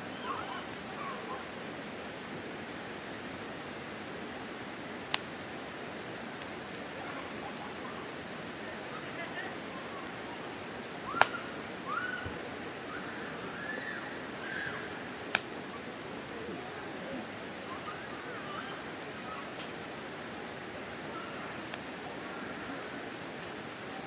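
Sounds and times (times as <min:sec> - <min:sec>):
campfire hissing and crackling: 0:00.0 - 0:24.0.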